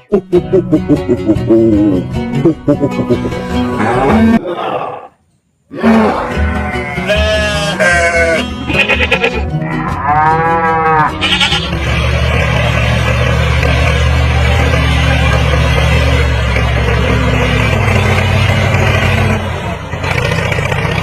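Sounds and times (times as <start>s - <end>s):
drawn-out bleating calls: 6.2s - 11.8s
engine-like drone: 8.0s - 21.0s.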